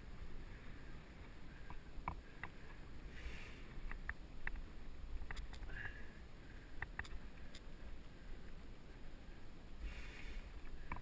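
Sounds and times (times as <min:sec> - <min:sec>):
rumble of tyres and air: 0:00.0 - 0:11.0
bike clicks and rattles: 0:03.8 - 0:05.9.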